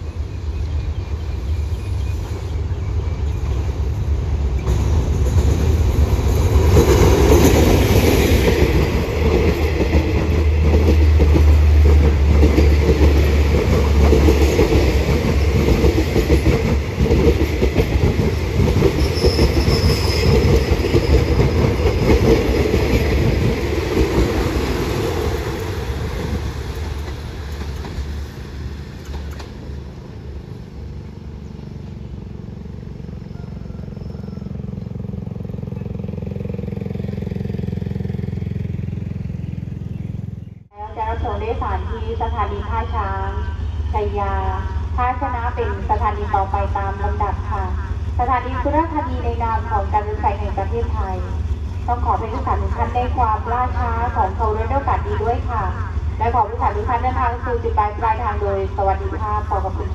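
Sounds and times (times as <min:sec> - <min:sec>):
diesel locomotive passing: 0:00.0 - 0:59.9
coaches clattering over rails: 0:04.6 - 0:30.1
high wheel squeal: 0:18.9 - 0:21.9.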